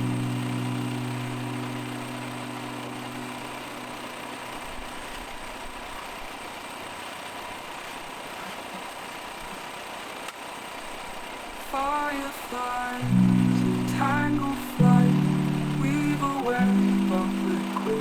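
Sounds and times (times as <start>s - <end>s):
background music: 0.0s - 5.0s, 13.0s - 18.0s
sawmill mechanical drone: 0.0s - 8.1s.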